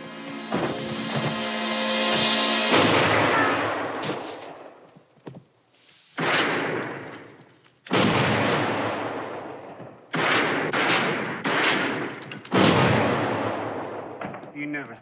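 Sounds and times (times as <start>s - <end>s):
shotgun blasts echoing: 6.2s - 14.5s.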